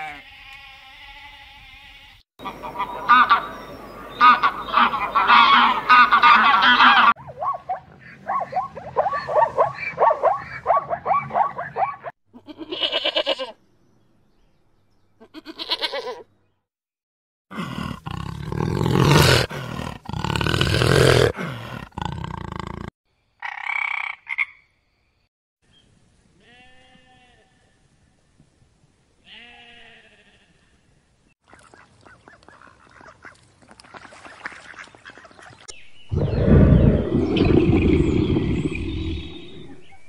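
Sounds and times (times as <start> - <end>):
goose calls: 2.4 - 3.6, 4.2 - 7.1
deep tiger growls: 17.5 - 22.9, 36.1 - 40.0.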